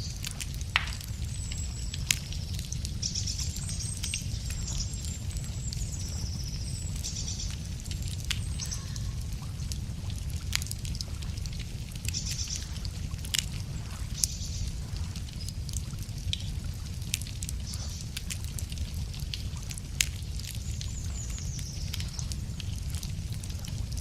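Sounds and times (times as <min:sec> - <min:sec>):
songbirds trilling: 0:00.0 - 0:09.8, 0:20.4 - 0:23.0
low steady rumble: 0:00.0 - 0:24.0
wood fire crackling and popping: 0:00.0 - 0:24.0.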